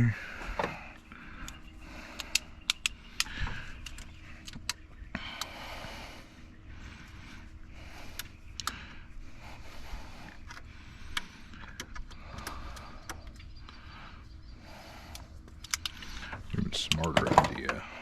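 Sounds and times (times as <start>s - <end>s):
low background rumble: 0.0s - 18.0s
hand tools clicking on metal: 1.4s - 5.5s.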